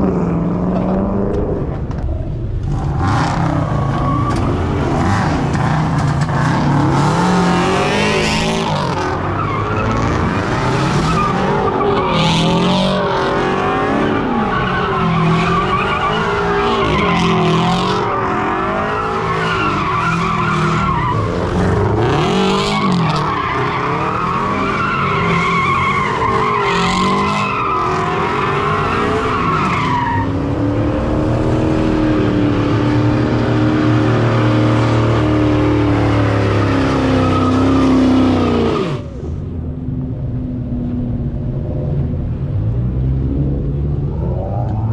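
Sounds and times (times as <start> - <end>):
tires squealing: 0.0 - 39.4
car engine revving: 0.0 - 44.9.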